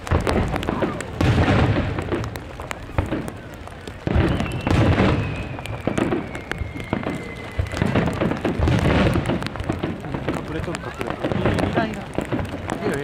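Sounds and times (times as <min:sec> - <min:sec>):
firework boom: 0:00.0 - 0:03.4, 0:04.0 - 0:13.0
firework crackle: 0:00.0 - 0:13.0
descending firework whistle: 0:04.0 - 0:09.2.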